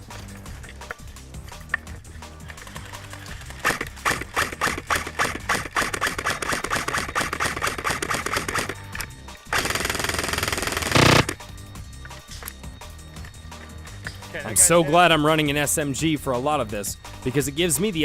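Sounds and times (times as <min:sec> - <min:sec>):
background music with bass: 0:00.0 - 0:18.0
airsoft gun rapid clicking: 0:02.4 - 0:11.4.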